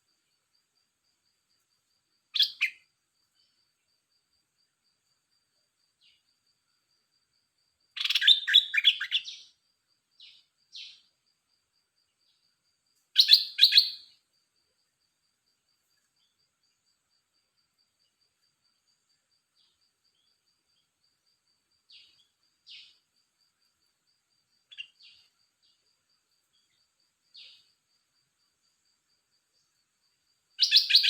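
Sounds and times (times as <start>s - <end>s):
songbird calls: 2.3s - 3.6s, 7.9s - 9.6s, 10.2s - 11.1s, 13.1s - 14.2s, 21.9s - 23.1s, 24.7s - 25.8s, 26.5s - 27.8s, 30.6s - 31.0s.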